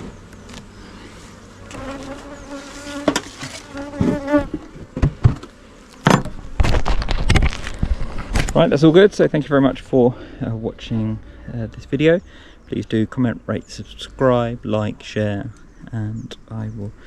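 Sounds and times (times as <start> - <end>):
bees buzzing: 0.0 - 6.7.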